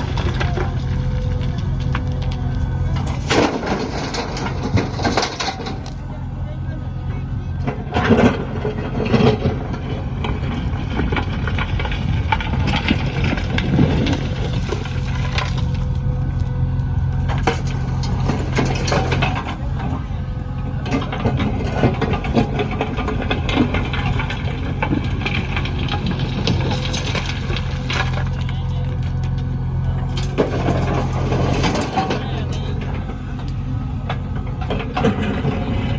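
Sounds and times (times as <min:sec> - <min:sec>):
diesel engine running: 0:00.0 - 0:35.9
digging knocks and clatter: 0:07.6 - 0:20.0.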